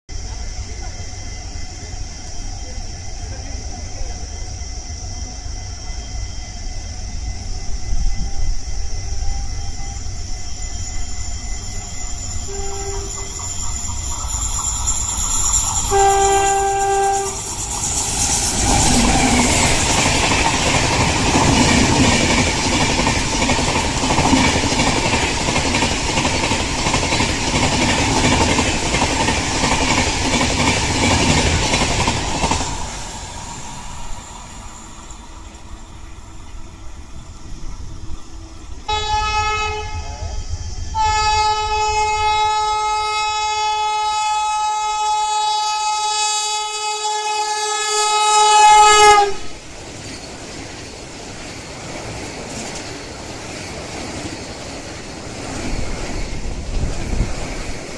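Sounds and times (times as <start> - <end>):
train wheels rumbling on rail: 0.1 - 57.9
locomotive horn blasts: 12.5 - 13.3, 15.9 - 17.4, 38.9 - 40.1, 41.0 - 49.5.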